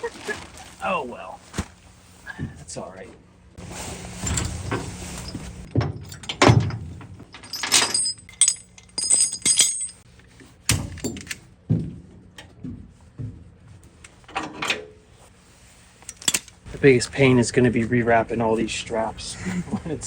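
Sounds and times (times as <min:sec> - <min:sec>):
metal clinking and jingling: 0:04.2 - 0:10.0
knocks and thuds: 0:10.7 - 0:13.8.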